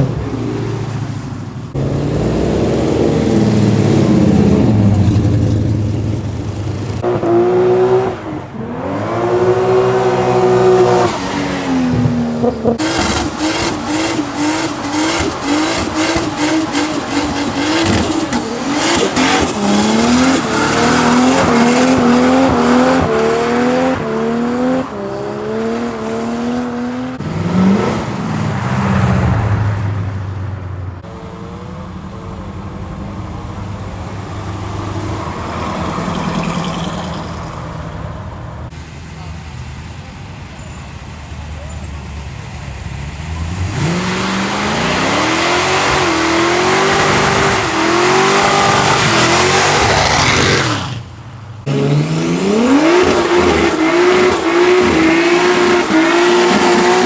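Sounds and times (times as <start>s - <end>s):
car engine revving hard: 0.0s - 29.0s, 43.2s - 57.0s
tyres squealing: 9.7s - 23.6s, 41.6s - 57.0s.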